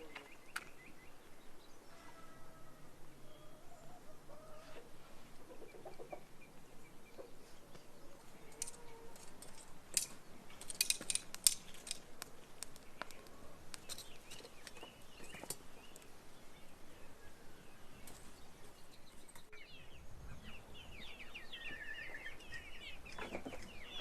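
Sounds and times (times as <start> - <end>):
chickens clucking: 3.4 - 9.2, 21.7 - 24.0.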